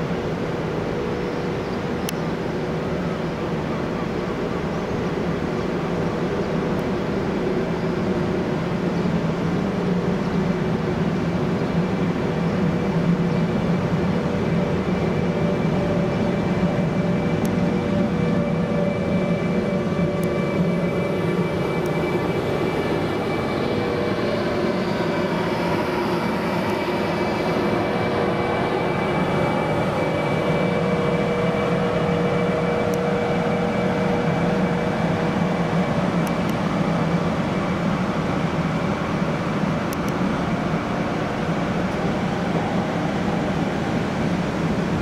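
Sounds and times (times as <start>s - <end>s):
thin high whine: 0.0s - 45.0s
train wheels rumbling on rail: 0.0s - 45.0s
low tone: 12.5s - 45.0s.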